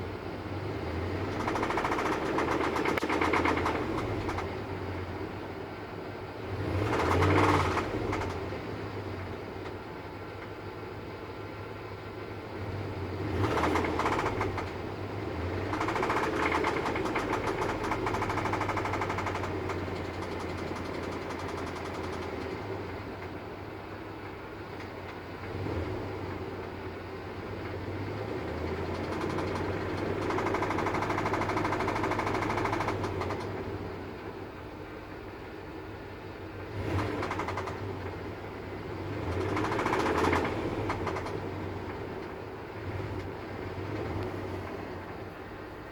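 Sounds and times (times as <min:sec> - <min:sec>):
car engine revving: 0:00.0 - 0:05.1, 0:06.4 - 0:09.2, 0:12.6 - 0:23.1, 0:27.4 - 0:33.9, 0:36.6 - 0:45.3
rapid engine knock: 0:01.1 - 0:04.8, 0:06.8 - 0:08.5, 0:13.4 - 0:23.4, 0:28.3 - 0:33.7, 0:36.9 - 0:38.2, 0:39.1 - 0:42.4.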